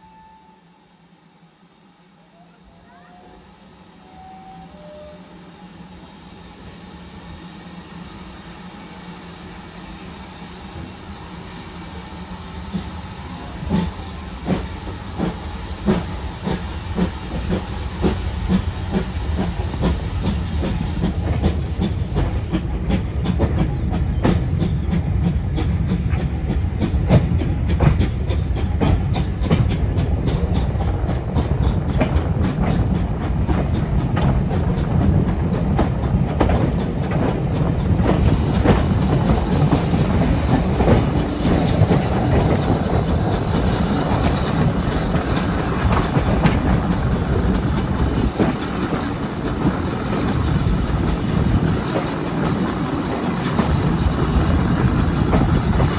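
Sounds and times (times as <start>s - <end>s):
train wheels clicking over rail joints: 10.7s - 55.9s.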